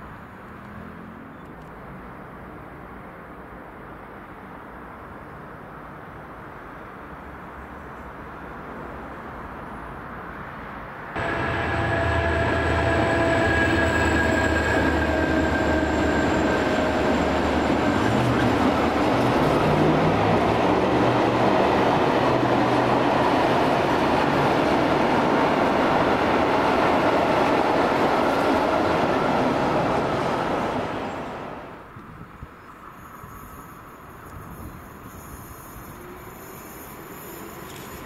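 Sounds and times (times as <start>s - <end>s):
train wheels rushing on rail: 11.2s - 31.9s, 32.8s - 38.0s
train drive whining: 11.2s - 32.1s.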